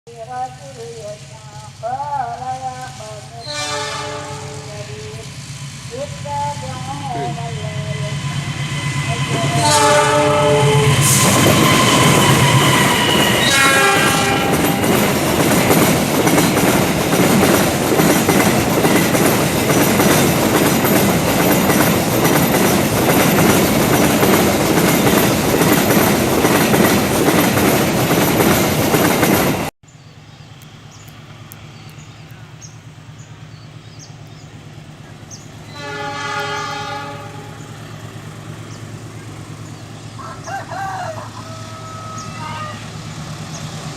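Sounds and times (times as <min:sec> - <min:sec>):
train rushing past: 0:00.2 - 0:29.7, 0:30.5 - 0:43.9
train horn blasts: 0:03.3 - 0:05.2, 0:07.1 - 0:15.0, 0:35.7 - 0:37.8, 0:41.6 - 0:43.0.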